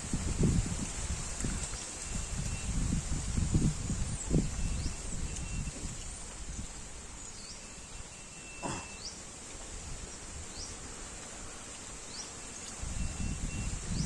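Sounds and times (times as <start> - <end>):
insect chirps: 1.0 - 14.0.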